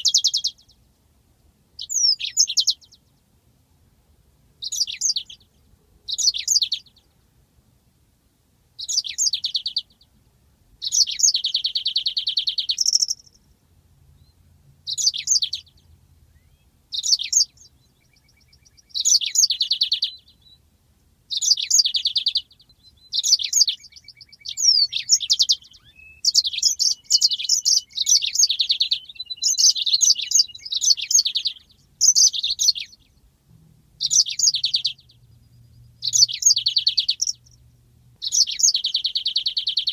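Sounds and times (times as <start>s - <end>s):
canary singing trills: 0.0s - 0.8s, 1.8s - 3.3s, 4.6s - 7.2s, 8.8s - 10.2s, 10.8s - 13.5s, 14.1s - 20.7s, 21.3s - 39.9s.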